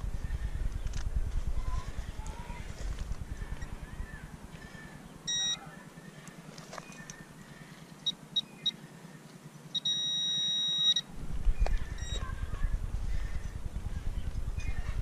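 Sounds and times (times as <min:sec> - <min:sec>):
metal detector steady tone: 0:04.5 - 0:05.8, 0:08.0 - 0:08.8, 0:09.7 - 0:12.4
metal detector beeps: 0:05.2 - 0:05.6, 0:08.0 - 0:08.8, 0:09.7 - 0:11.1, 0:11.7 - 0:12.2.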